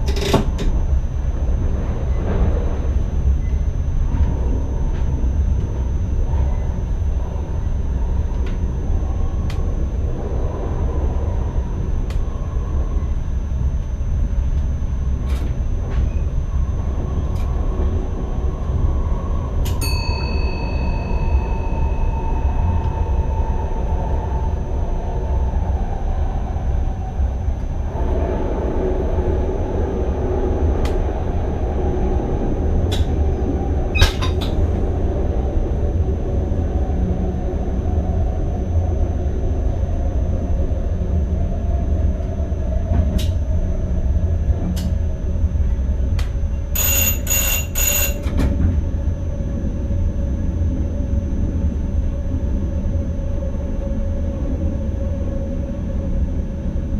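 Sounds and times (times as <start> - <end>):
high beeps: 46.8 - 48.2.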